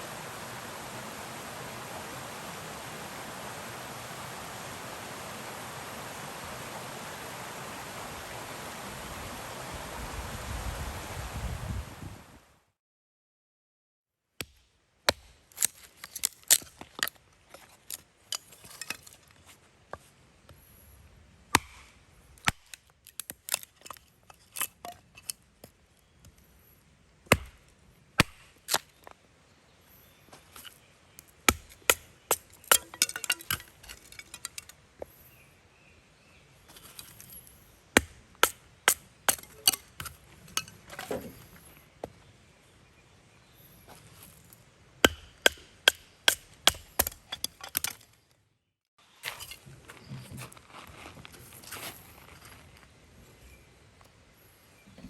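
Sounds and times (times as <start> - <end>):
firewood chopping knocks: 21.6 - 21.9, 27.3 - 27.6, 45.1 - 47.9.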